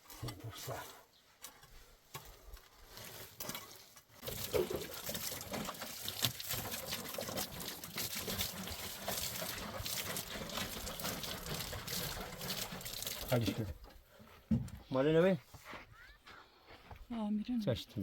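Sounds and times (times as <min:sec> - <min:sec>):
small water splashes: 0:03.4 - 0:13.8
water running: 0:04.2 - 0:13.9.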